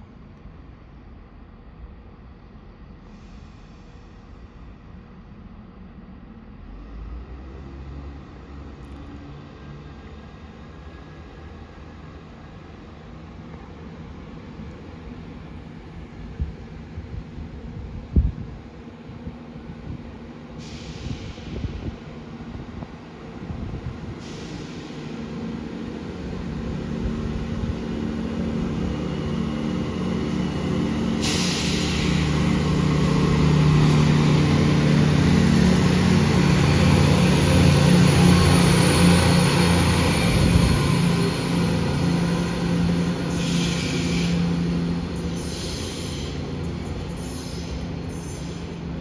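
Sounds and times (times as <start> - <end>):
train passing: 0.9 - 49.0
short high hisses: 20.6 - 21.7, 31.2 - 33.2, 40.8 - 48.8.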